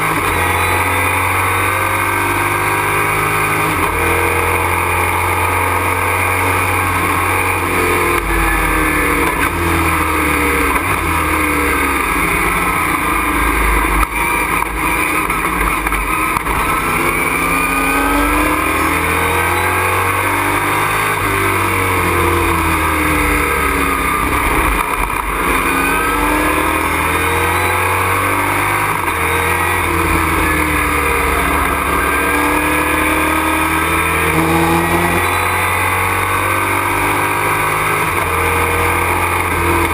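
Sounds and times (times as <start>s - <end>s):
road and wind noise: 0.0s - 39.9s
truck engine revving: 0.0s - 39.9s.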